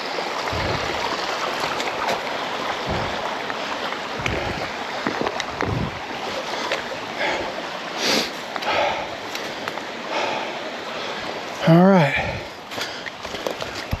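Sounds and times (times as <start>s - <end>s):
creek water rushing: 0.0s - 14.0s
dull low thumps: 0.5s - 1.2s, 2.7s - 3.4s, 4.1s - 4.8s, 5.4s - 6.2s.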